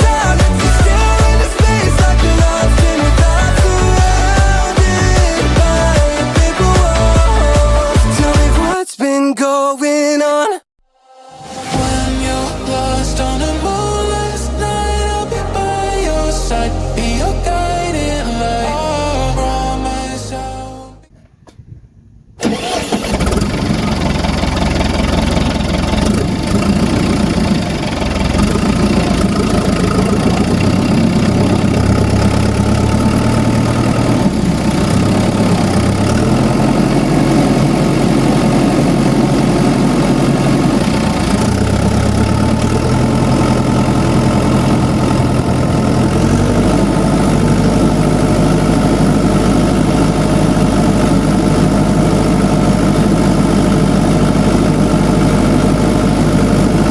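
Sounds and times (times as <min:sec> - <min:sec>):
tractor engine idling: 0:00.0 - 0:08.7, 0:22.4 - 0:56.9.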